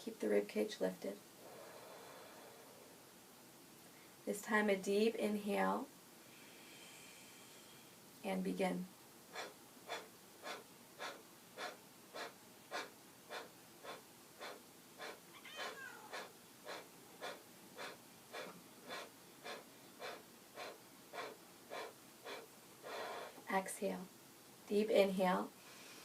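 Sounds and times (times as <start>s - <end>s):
forceful exhales through nose: 1.4s - 3.0s, 9.3s - 23.4s.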